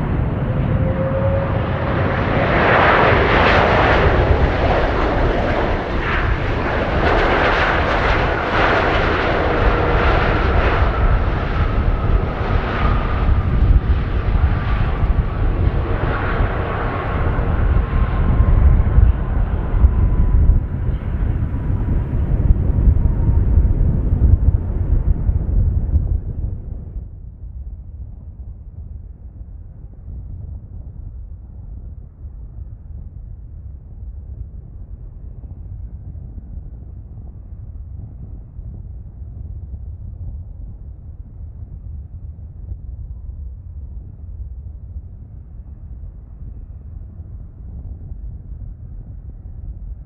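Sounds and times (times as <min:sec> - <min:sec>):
faint falling engine whine: 0:00.0 - 0:27.0
jet engines roaring: 0:00.0 - 0:27.0.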